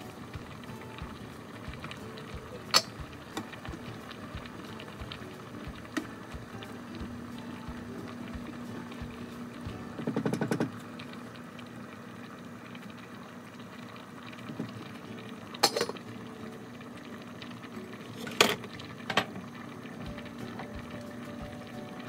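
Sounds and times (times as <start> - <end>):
saucepan boiling: 0.0 - 22.0
metal pot lids clanking: 2.7 - 3.5, 15.6 - 16.0.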